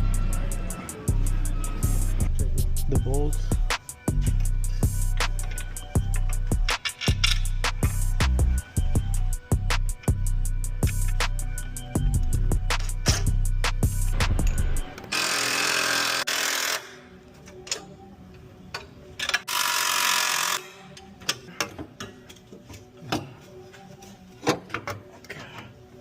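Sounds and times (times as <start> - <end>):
power tool running: 15.1 - 16.9.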